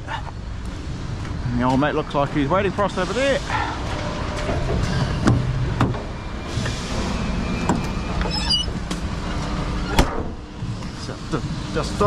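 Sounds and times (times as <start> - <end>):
truck diesel engine running: 0.0 - 12.0
high squeak: 7.8 - 10.0.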